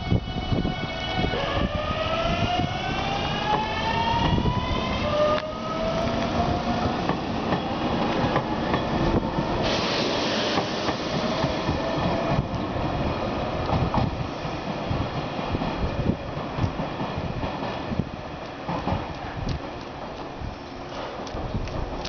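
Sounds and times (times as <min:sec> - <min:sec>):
electric train rumbling: 0:00.0 - 0:22.0
short hiss: 0:09.6 - 0:11.1.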